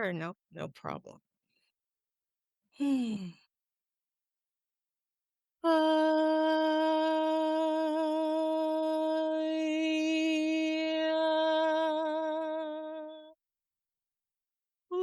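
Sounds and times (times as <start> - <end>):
woman singing a long tone: 5.6 - 13.4.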